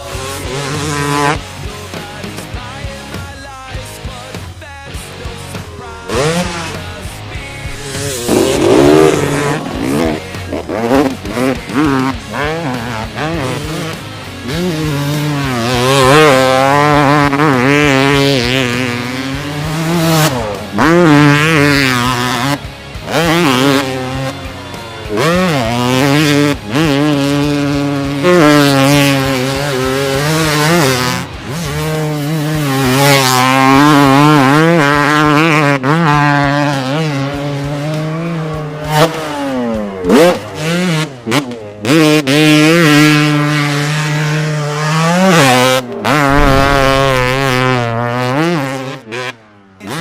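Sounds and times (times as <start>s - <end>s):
motorcycle engine revving: 0.0s - 50.0s
steady low drone: 5.0s - 14.6s, 45.9s - 48.5s.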